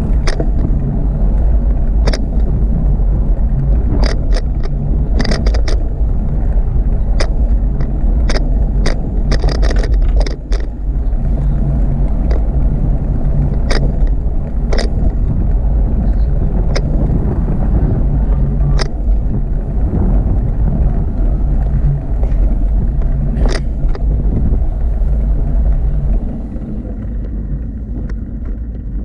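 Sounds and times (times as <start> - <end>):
bicycle clicks and rattles: 0.0 - 29.0
wind rumbling on microphone: 0.0 - 29.0.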